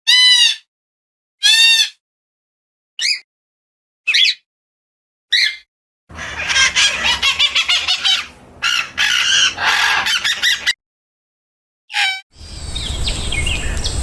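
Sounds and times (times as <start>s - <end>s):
rapid chattering bird calls: 6.1s - 10.8s
bird chirps: 12.4s - 14.0s.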